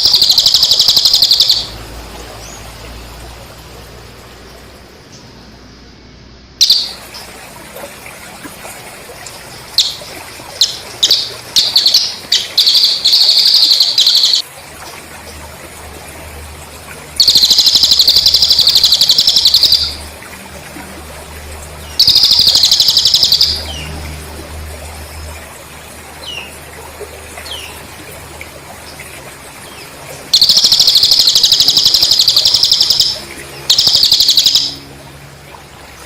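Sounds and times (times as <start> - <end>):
bird chirping and trilling: 0.0 - 3.0, 6.6 - 7.3, 9.6 - 14.4, 17.2 - 20.1, 21.8 - 24.0, 29.6 - 35.0
crickets chirping: 0.0 - 7.2, 9.7 - 14.4, 17.2 - 20.0, 21.9 - 23.8, 30.3 - 34.9.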